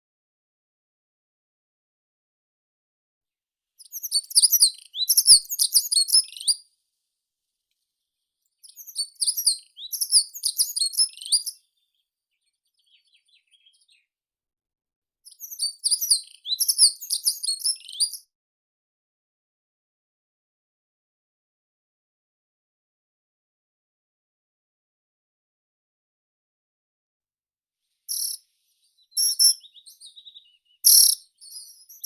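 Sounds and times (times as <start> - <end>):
songbird singing: 3.8 - 6.6, 8.6 - 14.1, 15.4 - 18.2, 28.1 - 32.0.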